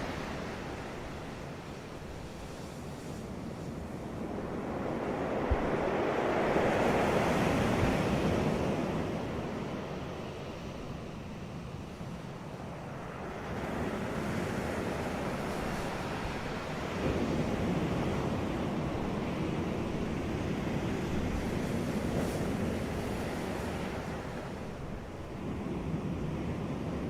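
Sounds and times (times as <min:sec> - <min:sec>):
ocean waves breaking on beach: 0:00.0 - 0:27.0.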